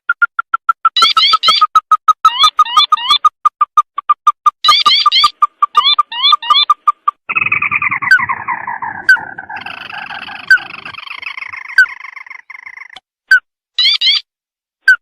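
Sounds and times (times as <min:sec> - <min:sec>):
bird chattering rattle: 0:00.1 - 0:13.0
bird whistling notes: 0:07.3 - 0:13.0
sharp loud bird notes: 0:07.3 - 0:13.0.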